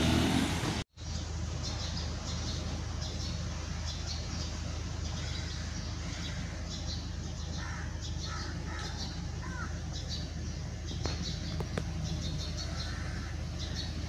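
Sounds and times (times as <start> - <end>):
steady low hum: 1.0 - 14.0
bird calling: 1.1 - 14.0.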